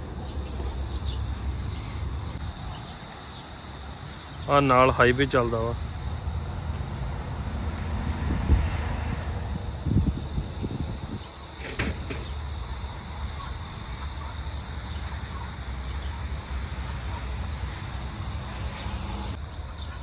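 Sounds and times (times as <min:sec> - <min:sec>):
highway traffic rumble: 0:00.0 - 0:20.0.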